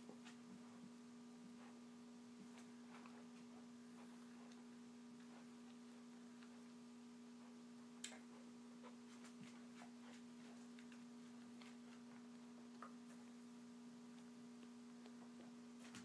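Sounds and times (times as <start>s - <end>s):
steady electrical hum: 0.0s - 16.0s
puppy chewing an apple: 8.2s - 13.4s.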